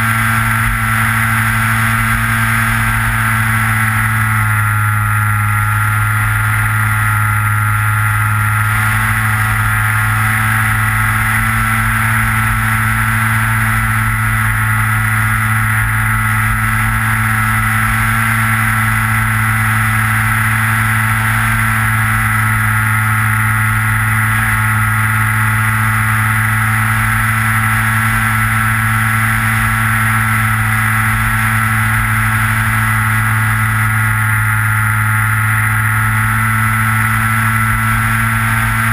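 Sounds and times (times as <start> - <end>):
model plane motor whine: 0.0 - 38.9.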